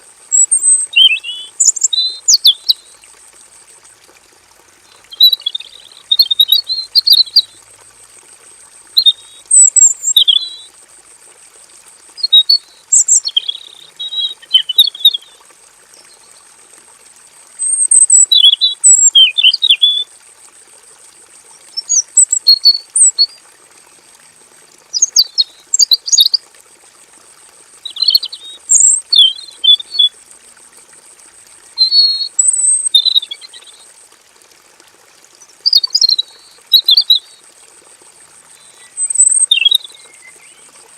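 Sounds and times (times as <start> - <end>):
bird singing rapid warbles: 0.3 - 3.0, 4.9 - 7.5, 9.0 - 10.7, 12.2 - 16.4, 17.6 - 20.1, 21.6 - 23.4, 24.9 - 26.4, 27.8 - 30.2, 31.8 - 33.8, 35.6 - 37.4, 38.5 - 40.8.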